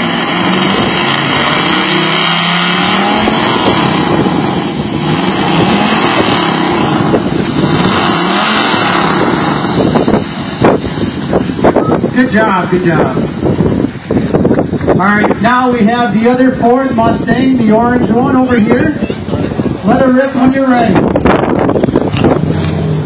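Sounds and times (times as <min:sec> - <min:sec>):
sharp exhaust cracks: 0:00.0 - 0:18.5
car engine revving: 0:00.0 - 0:23.0.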